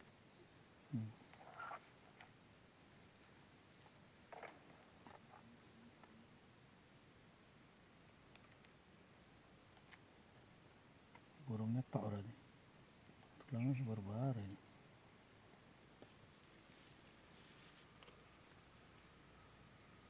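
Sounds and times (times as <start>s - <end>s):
insects chirring: 0.0s - 20.0s
person's voice: 13.5s - 14.6s.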